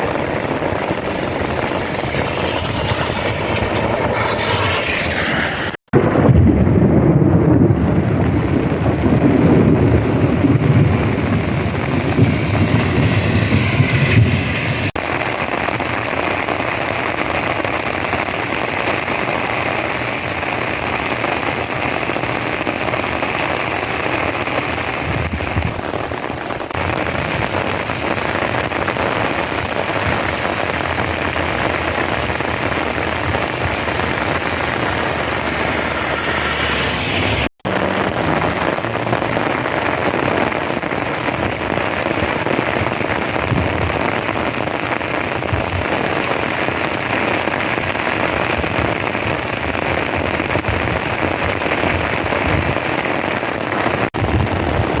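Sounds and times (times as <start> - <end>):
heavy rain pouring: 0.0 - 55.0
low rumble of thunder: 0.5 - 5.3, 5.9 - 14.9.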